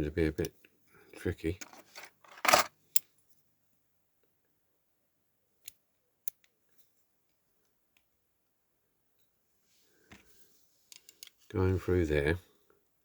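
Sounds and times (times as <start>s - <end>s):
loud scrape of model car parts: 1.6s - 2.7s.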